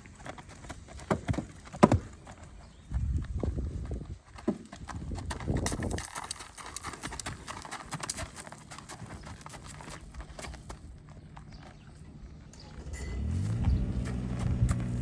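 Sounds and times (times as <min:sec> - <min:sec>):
horse hoofbeats clip-clopping: 0:00.0 - 0:12.3, 0:13.2 - 0:15.0
low rumbles: 0:10.8 - 0:15.0.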